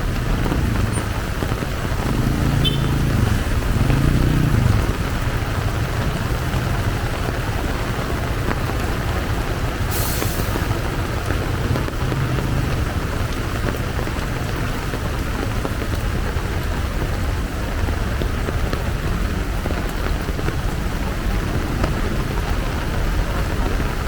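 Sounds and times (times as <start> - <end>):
vehicle engine passing close: 0.0 - 8.8
heavy rain falling: 0.0 - 24.0.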